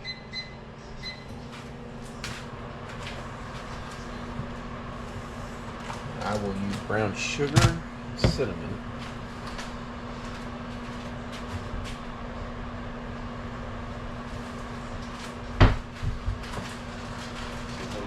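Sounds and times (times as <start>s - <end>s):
steady low hum: 0.0s - 18.0s
cupboard door knocking shut: 15.6s - 15.9s.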